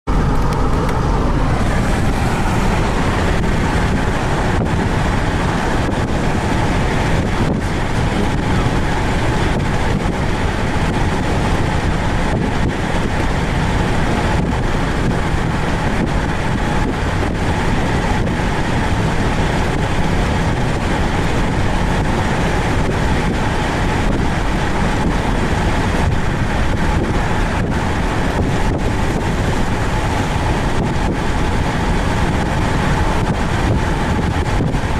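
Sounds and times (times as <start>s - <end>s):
low rumble: 0.1s - 34.9s
wind buffeting microphone: 0.1s - 34.9s.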